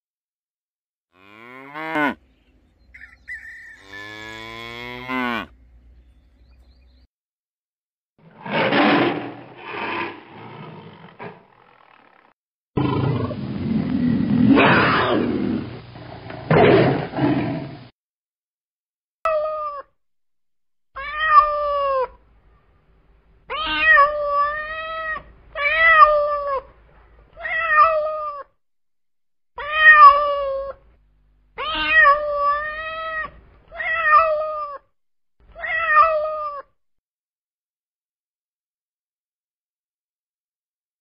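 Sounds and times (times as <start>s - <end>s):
tiger roaring: 8.2s - 17.9s
cat meowing: 21.0s - 22.2s, 23.5s - 26.7s, 27.3s - 28.5s, 29.6s - 30.8s, 31.6s - 34.8s, 35.5s - 36.7s.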